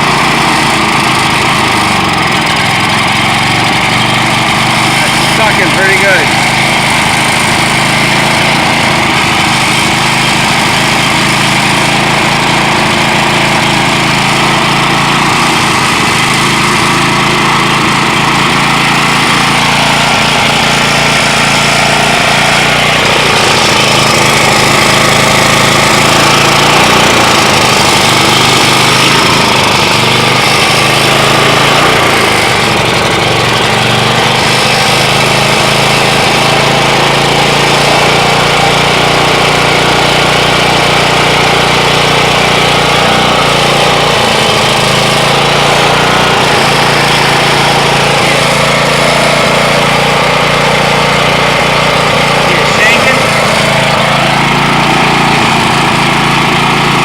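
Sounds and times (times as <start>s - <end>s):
generator engine running: 0.0s - 57.0s.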